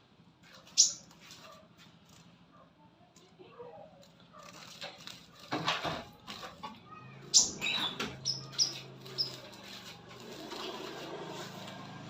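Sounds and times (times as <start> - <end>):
sunbird chirping: 7.3 - 9.6.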